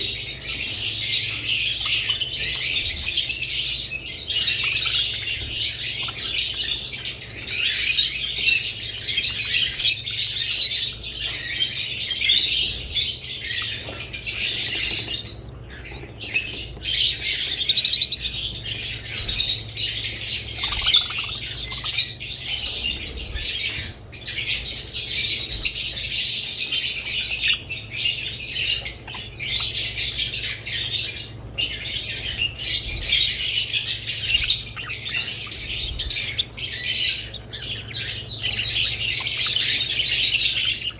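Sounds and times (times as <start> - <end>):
small birds chirping and chattering: 0.0 - 40.9.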